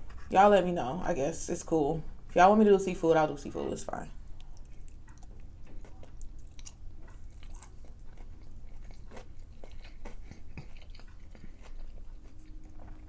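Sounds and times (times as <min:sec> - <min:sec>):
low steady hum: 0:00.0 - 0:13.0
person chewing and biting: 0:04.3 - 0:13.0.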